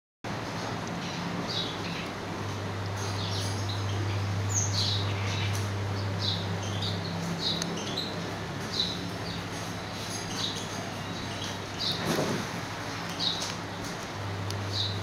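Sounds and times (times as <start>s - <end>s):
steady low hum: 0.3s - 15.0s
small birds chirping: 0.9s - 15.0s.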